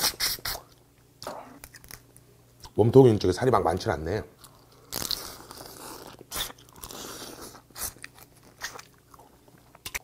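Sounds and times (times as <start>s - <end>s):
person chewing: 4.4s - 10.0s.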